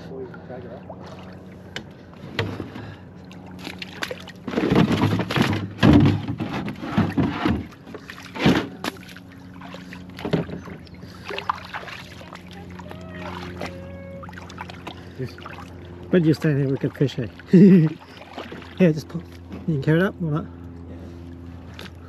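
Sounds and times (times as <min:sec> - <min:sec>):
steady low hum: 0:00.0 - 0:22.0
canoe hull and paddle knocking: 0:04.0 - 0:09.2, 0:10.1 - 0:15.0.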